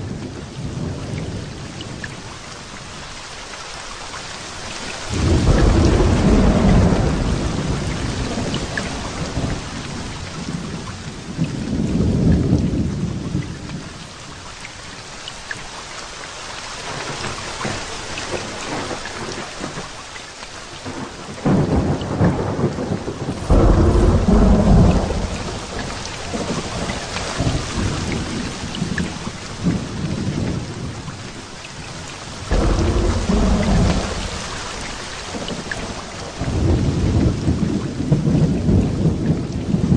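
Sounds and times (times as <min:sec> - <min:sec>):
heavy rain: 0:00.0 - 0:39.9
thunder rumbling: 0:05.1 - 0:13.9, 0:20.8 - 0:31.5, 0:32.2 - 0:39.9.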